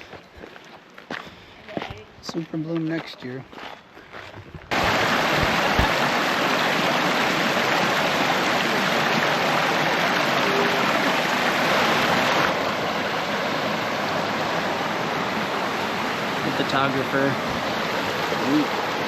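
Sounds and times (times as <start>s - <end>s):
creek water rushing: 4.7s - 19.0s.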